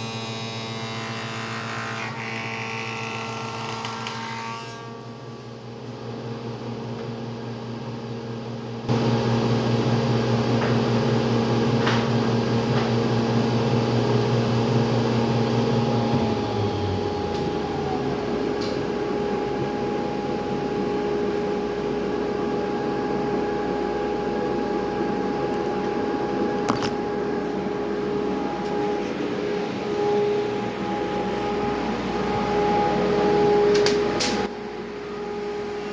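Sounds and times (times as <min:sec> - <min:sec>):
woodshop machinery motor hum: 0:08.9 - 0:35.9.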